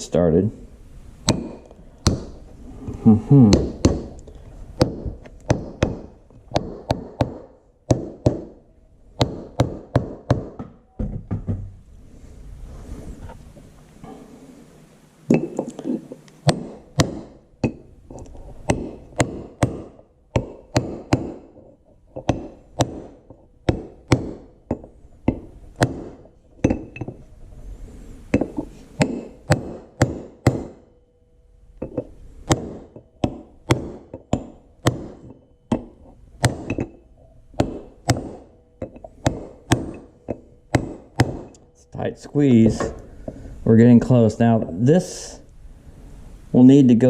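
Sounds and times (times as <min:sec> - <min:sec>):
hammer tapping metal: 0:01.2 - 0:02.4, 0:16.4 - 0:17.9, 0:18.7 - 0:21.6, 0:22.2 - 0:27.2, 0:28.4 - 0:31.0, 0:31.8 - 0:37.0, 0:37.6 - 0:41.7.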